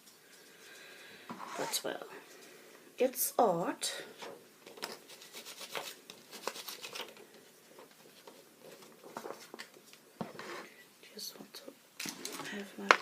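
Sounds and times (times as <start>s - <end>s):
craft materials rubbing and rustling: 4.2s - 10.7s.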